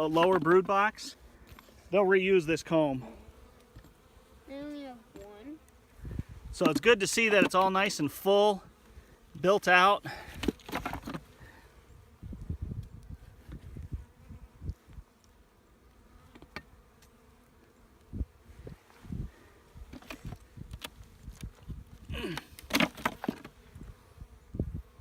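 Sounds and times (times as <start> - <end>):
honeybees buzzing: 0.0 - 25.0
knocks and handling thumps: 6.5 - 7.8, 10.3 - 11.3, 19.8 - 21.6, 22.2 - 23.6.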